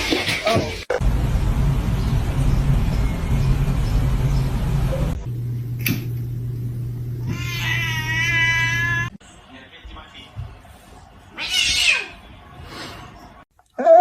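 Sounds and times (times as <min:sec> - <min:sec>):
sharp click: 0:05.8 - 0:06.1
kitten meowing: 0:07.3 - 0:09.1.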